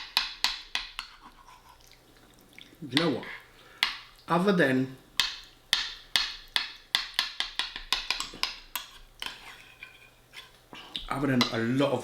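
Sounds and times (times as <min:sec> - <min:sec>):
cutlery clinking against a dish: 0:05.2 - 0:11.6.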